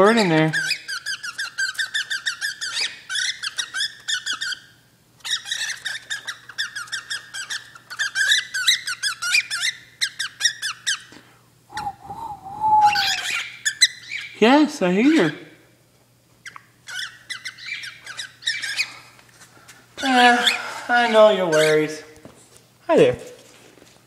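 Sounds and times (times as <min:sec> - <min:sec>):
bird chirping rapidly: 0:00.6 - 0:04.7, 0:11.7 - 0:14.4, 0:16.4 - 0:18.9.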